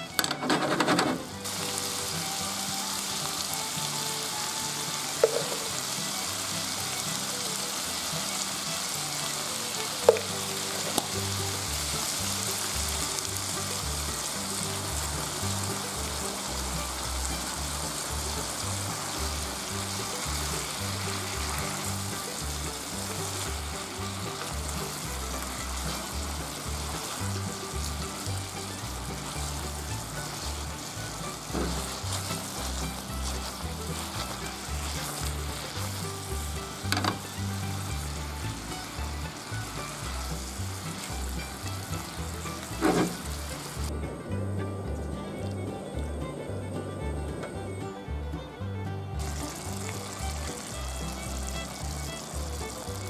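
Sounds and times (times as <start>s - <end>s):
food sizzling in a frying pan: 0.0s - 43.9s, 49.2s - 53.0s
spatula stirring in pan: 18.0s - 43.8s.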